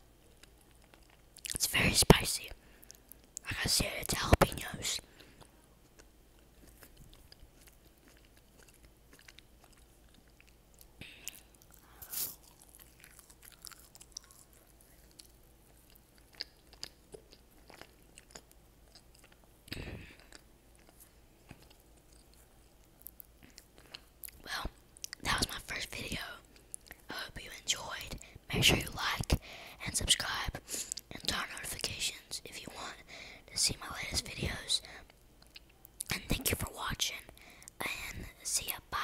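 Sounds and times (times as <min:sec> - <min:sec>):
food crunching: 0:00.2 - 0:01.6, 0:05.1 - 0:25.2
wet chewing mouth sounds: 0:00.2 - 0:01.6, 0:04.1 - 0:25.6, 0:34.8 - 0:36.1.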